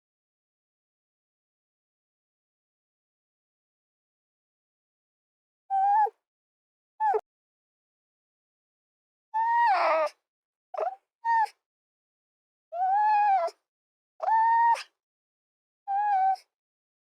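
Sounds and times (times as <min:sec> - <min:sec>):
animal crying high-pitched: 0:09.4 - 0:10.2, 0:12.8 - 0:13.6, 0:14.2 - 0:14.9, 0:15.9 - 0:16.4.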